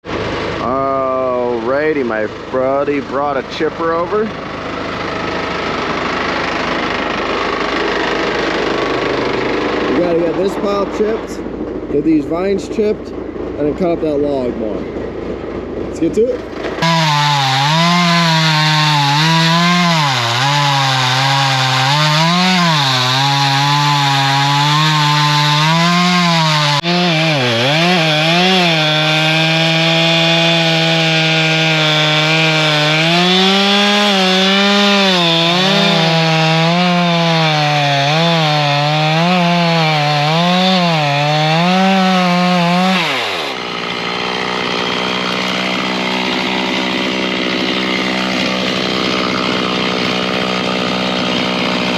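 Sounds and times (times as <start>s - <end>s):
gasoline engine running at high speed: 0.0s - 17.8s, 34.4s - 37.1s.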